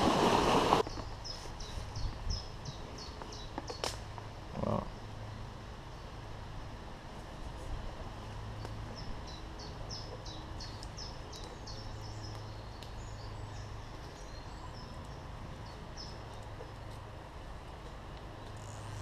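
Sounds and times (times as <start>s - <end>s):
river flowing: 0.0s - 0.8s
small songbird singing: 0.8s - 3.9s, 8.6s - 16.8s.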